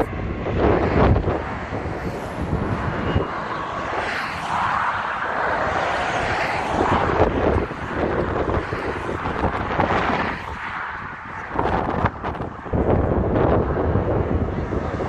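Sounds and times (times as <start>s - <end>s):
steady rushing noise: 0.0s - 15.0s
wind buffeting microphone: 0.0s - 15.0s.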